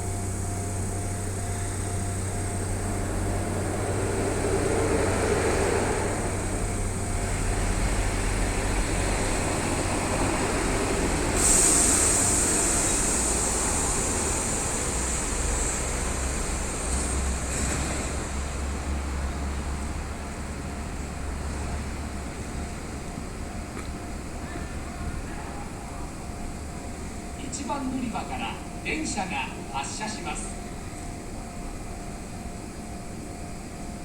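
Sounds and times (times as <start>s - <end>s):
loud train hiss: 0.0s - 23.0s
electric train rumbling: 0.0s - 34.0s.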